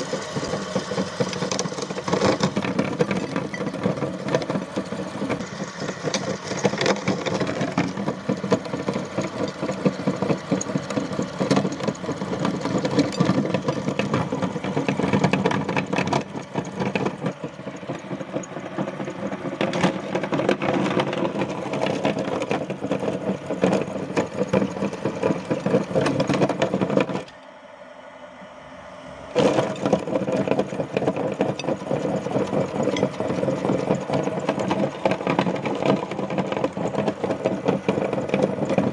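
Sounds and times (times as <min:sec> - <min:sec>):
electric meat grinder running: 0:00.0 - 0:27.4, 0:29.1 - 0:38.9.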